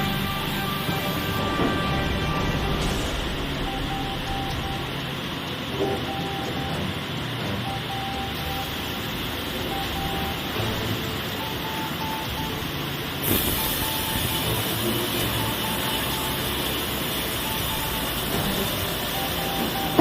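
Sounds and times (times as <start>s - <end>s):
short high beep: 0.0s - 5.2s
sawmill machinery running: 0.0s - 20.0s.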